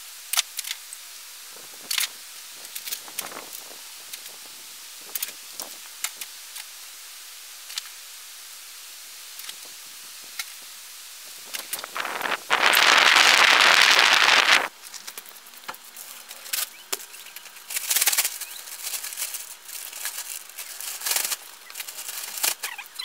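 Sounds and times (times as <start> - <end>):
plastic bag rustling and crinkling: 9.5 - 16.7, 17.4 - 23.0
loud rush of noise: 11.6 - 14.7.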